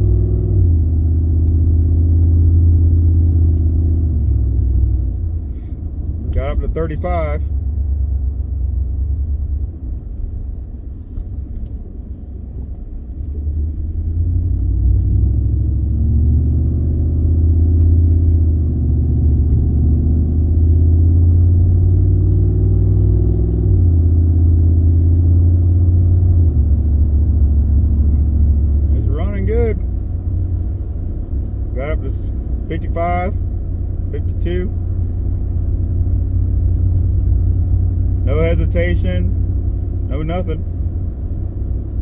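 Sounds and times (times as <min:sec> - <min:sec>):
truck engine accelerating: 0:00.0 - 0:42.0
transmission upshifts: 0:27.7 - 0:41.4.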